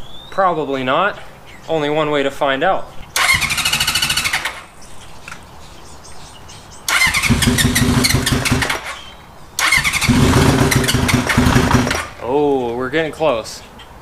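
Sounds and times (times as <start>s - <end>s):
motorcycle engine cranking: 3.2s - 4.6s, 6.9s - 12.2s.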